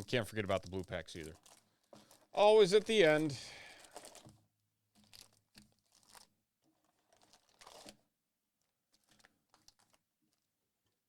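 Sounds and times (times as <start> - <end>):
card wrappers crinkling and tearing: 0.1 - 4.4, 5.0 - 8.0, 8.9 - 10.0.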